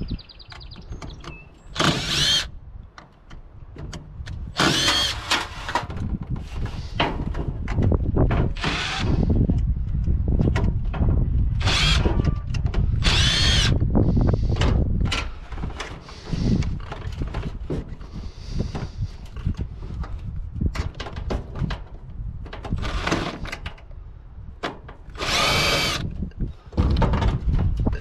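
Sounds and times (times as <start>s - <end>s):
power drill whining: 1.8s - 2.5s, 4.6s - 5.8s, 8.6s - 9.2s, 11.6s - 13.8s, 25.2s - 26.1s.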